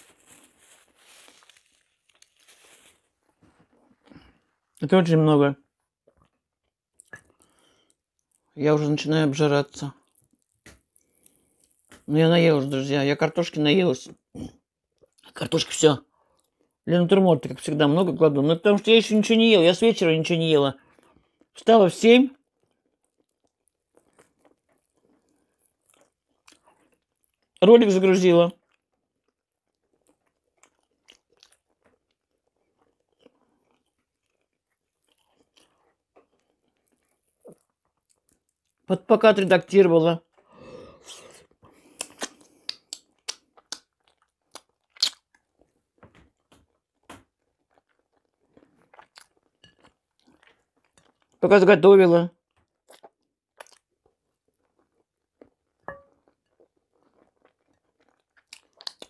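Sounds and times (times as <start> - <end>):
faint chewing: 5.7 - 8.5, 9.9 - 12.1, 22.3 - 27.6, 28.5 - 38.9, 40.2 - 51.4, 52.4 - 59.0
soft mouth clicks: 41.8 - 43.9.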